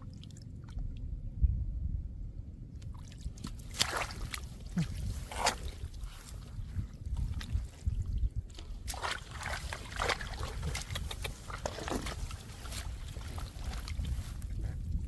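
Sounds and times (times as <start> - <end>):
low rumble: 0.0 - 8.9
splashing in muddy water: 2.8 - 15.0.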